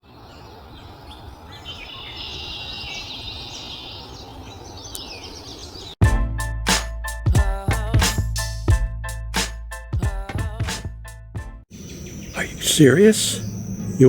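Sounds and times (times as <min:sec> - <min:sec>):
songbirds chirping: 0:00.0 - 0:06.0, 0:11.7 - 0:14.0
loud music with a beat: 0:06.0 - 0:11.6
background hiss: 0:11.7 - 0:14.0.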